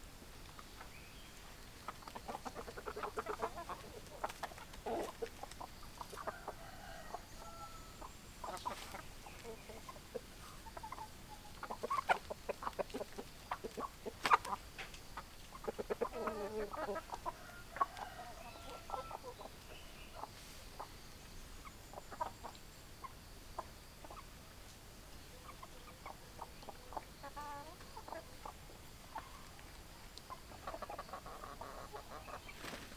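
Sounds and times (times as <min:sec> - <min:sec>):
hens clucking: 0:00.6 - 0:21.0, 0:21.6 - 0:32.9.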